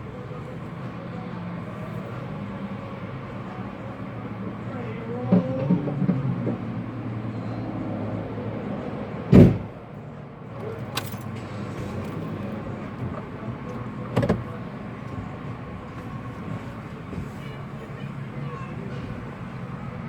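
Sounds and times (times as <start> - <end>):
car doors shutting: 9.3 - 9.8, 10.6 - 15.3.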